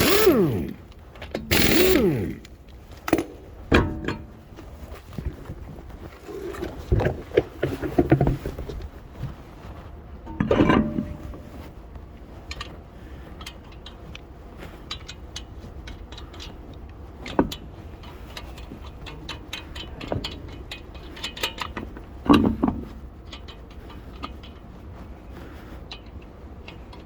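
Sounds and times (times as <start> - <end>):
small metallic clicks: 0.0 - 3.4
metal clanks: 0.0 - 4.4.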